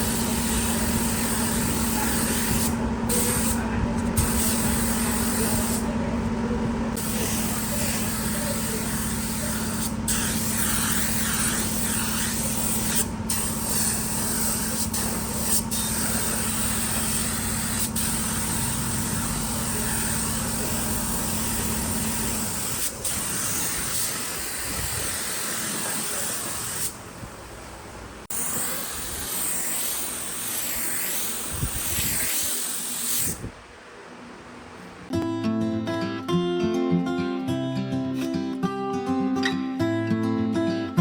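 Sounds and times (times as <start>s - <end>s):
spraying hiss: 0.0s - 3.6s, 4.2s - 5.9s, 7.0s - 27.0s, 28.3s - 33.5s.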